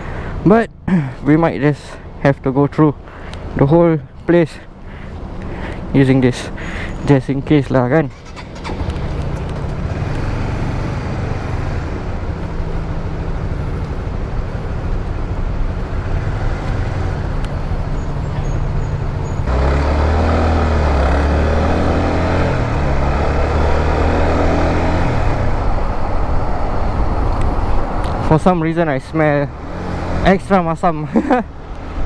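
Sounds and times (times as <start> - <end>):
wind and road noise: 0.0 - 32.0
motorcycle engine running: 19.4 - 25.4.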